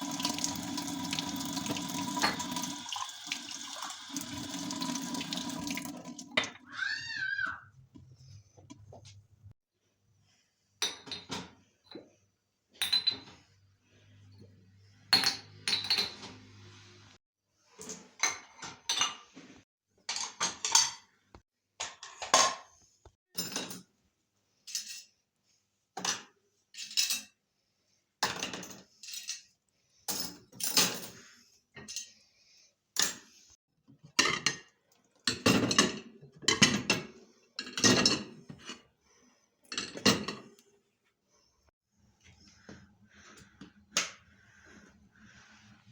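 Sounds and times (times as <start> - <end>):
dishes and cutlery clinking: 10.8 - 12.1, 12.8 - 13.5, 34.0 - 38.9.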